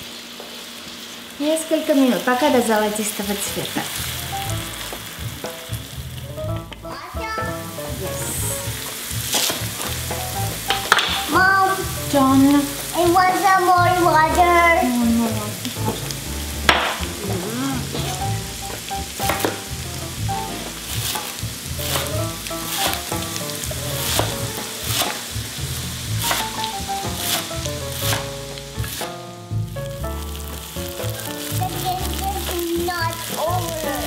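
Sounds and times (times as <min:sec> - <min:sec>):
onion sizzling in oil: 0:00.0 - 0:34.0
knife chopping on wooden board: 0:24.1 - 0:25.2.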